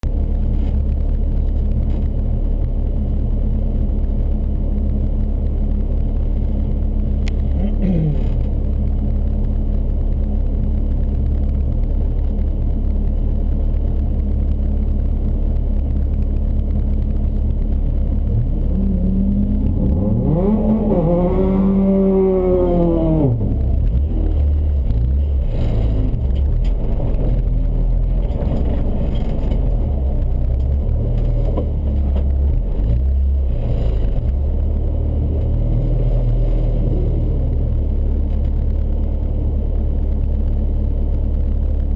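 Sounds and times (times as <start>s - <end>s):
car engine running and revving: 0.0s - 41.9s.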